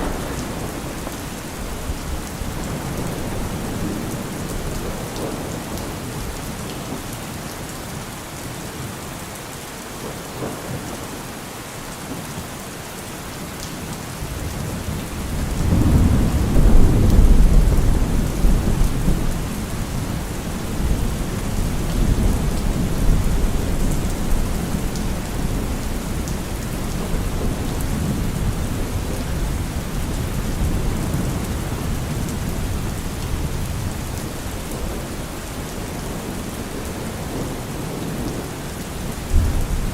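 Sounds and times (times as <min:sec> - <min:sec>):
thunder rumbling: 0:00.0 - 0:06.4, 0:14.6 - 0:38.4, 0:39.0 - 0:39.9
steady rain falling: 0:00.0 - 0:39.9.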